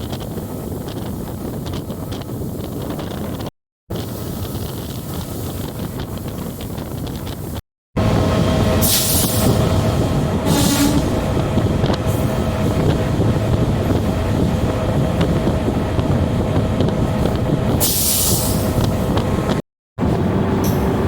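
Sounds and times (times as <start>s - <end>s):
train wheels and diesel rumble: 0.0s - 21.0s
hiss burst: 8.8s - 9.5s, 17.8s - 18.6s.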